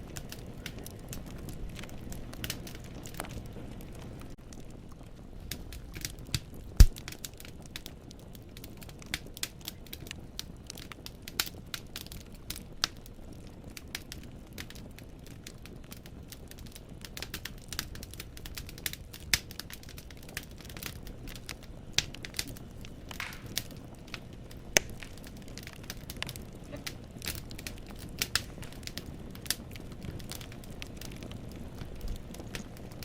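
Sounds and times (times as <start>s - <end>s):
low rumble of flame: 0.0s - 33.0s
logs popping and snapping: 5.5s - 7.5s, 17.3s - 33.0s.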